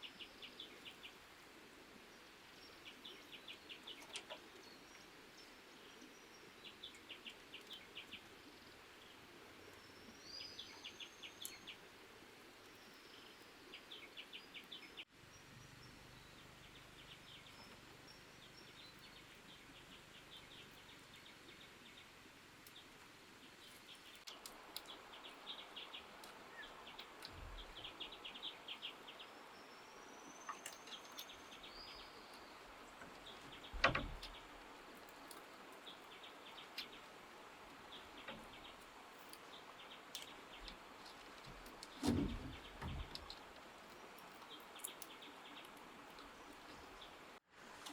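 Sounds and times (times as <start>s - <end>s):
faint outdoor background noise: 0.0s - 47.9s
small birds chirping: 0.0s - 47.9s
thump: 33.8s - 34.2s, 42.0s - 43.2s.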